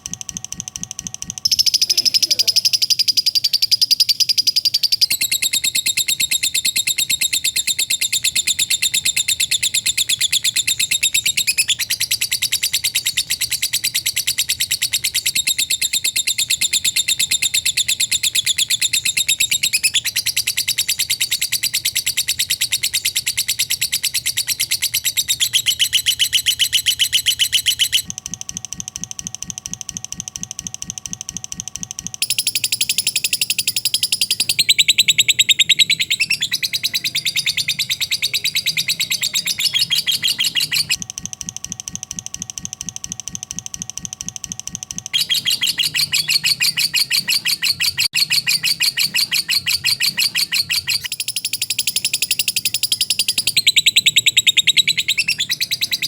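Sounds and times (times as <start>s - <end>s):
lovebird chattering trill: 1.4s - 28.1s, 32.2s - 41.0s, 45.2s - 56.0s.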